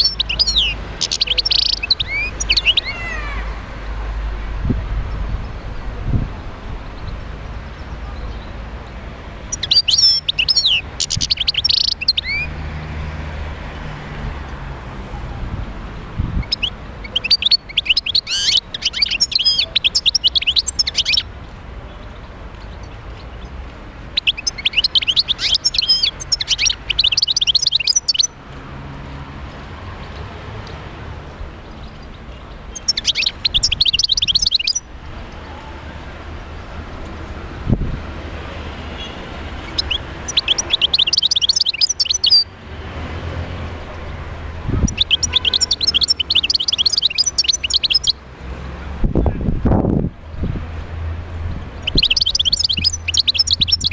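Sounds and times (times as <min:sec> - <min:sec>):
bird twittering song: 0:00.0 - 0:03.6, 0:06.9 - 0:12.6, 0:16.4 - 0:21.3, 0:21.9 - 0:28.4, 0:31.6 - 0:35.4, 0:39.0 - 0:42.5, 0:44.8 - 0:48.2, 0:51.5 - 0:53.9.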